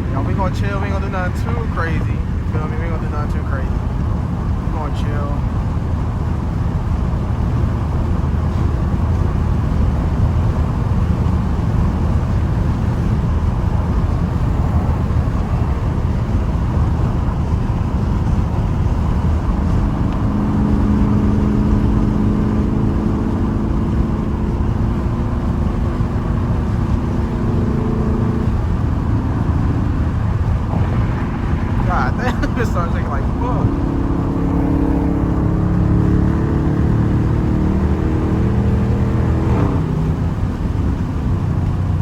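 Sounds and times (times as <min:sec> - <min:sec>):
car exhaust cruising: 0:00.0 - 0:42.0
droning note: 0:25.1 - 0:37.4.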